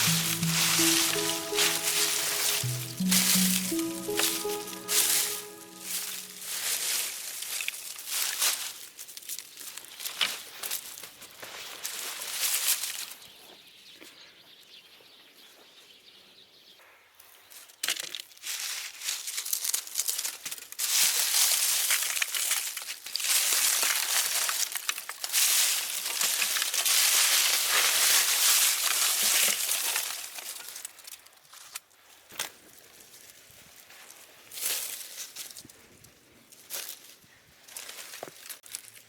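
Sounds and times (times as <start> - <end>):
dry leaves crackling: 18.4 - 30.8.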